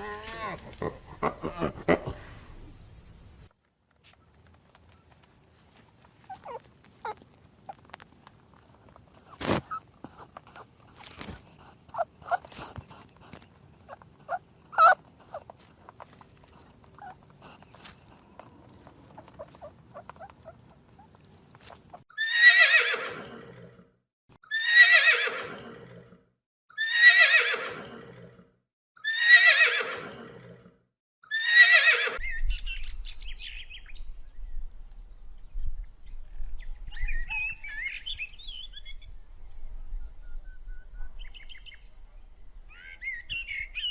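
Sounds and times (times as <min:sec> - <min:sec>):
horse neighing: 0:09.2 - 0:16.0.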